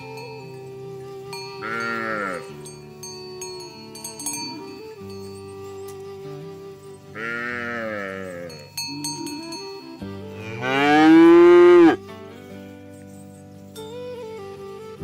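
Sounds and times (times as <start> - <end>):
background music: 0.0 - 15.0
cow mooing: 1.6 - 2.5, 7.2 - 8.6, 10.4 - 12.0.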